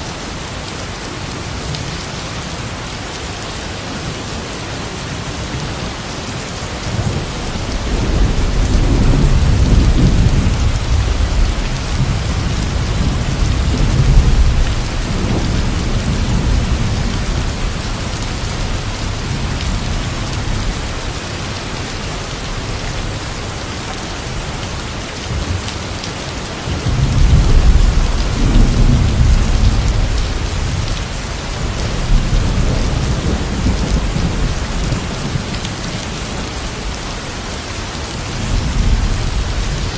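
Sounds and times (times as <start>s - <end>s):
heavy rain hissing: 0.0s - 39.9s
thunder rumbling: 6.9s - 21.2s, 26.7s - 37.0s.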